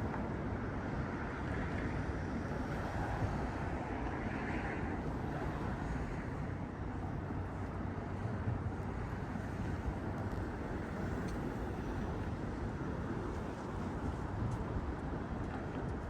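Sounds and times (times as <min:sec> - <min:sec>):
city traffic rumble: 0:00.0 - 0:16.0.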